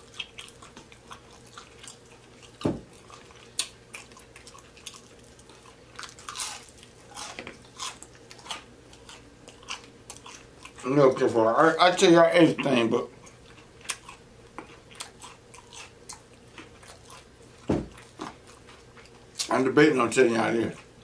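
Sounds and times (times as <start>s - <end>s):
crunchy chewing: 0.0s - 11.9s, 12.5s - 19.6s
dull thump: 2.6s - 2.9s, 17.7s - 18.0s.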